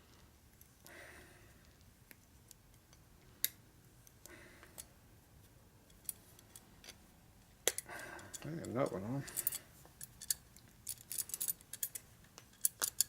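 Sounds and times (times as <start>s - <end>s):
metal tool clicks: 7.6s - 13.0s.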